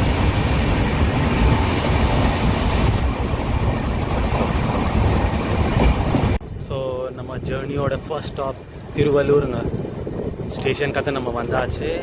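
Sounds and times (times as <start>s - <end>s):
train wheels rumbling on rails: 0.0s - 6.4s.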